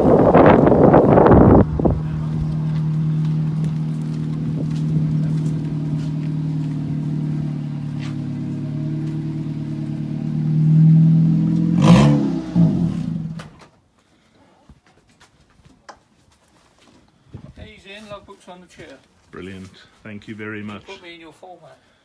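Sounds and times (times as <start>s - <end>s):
wind gust on microphone: 0.0s - 2.6s
car engine running at low revs: 0.0s - 13.5s.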